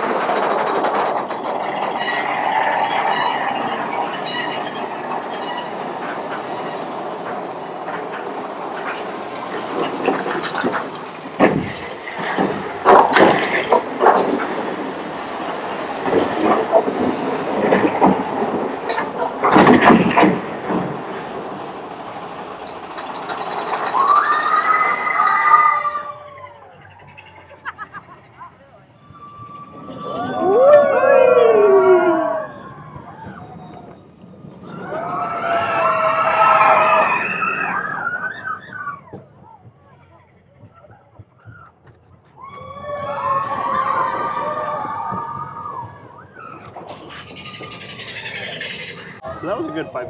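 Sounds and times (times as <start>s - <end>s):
clattering jolts: 0.0s - 24.0s
roller coaster rumbling on track: 0.0s - 50.0s
squealing tone: 1.2s - 7.4s, 23.9s - 39.2s, 42.4s - 50.0s.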